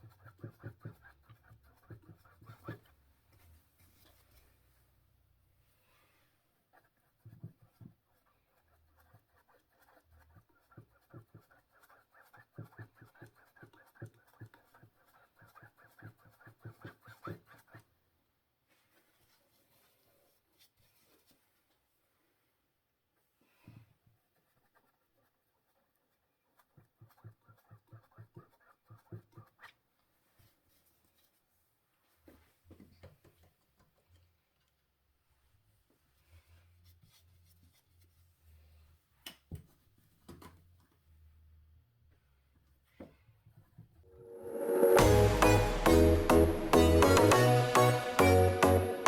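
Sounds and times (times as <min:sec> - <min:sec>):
paintbrush scratching on canvas: 0:00.0 - 0:04.9, 0:05.8 - 0:18.0, 0:24.1 - 0:31.6
paintbrush strokes on canvas: 0:05.6 - 0:17.9, 0:44.2 - 0:48.0.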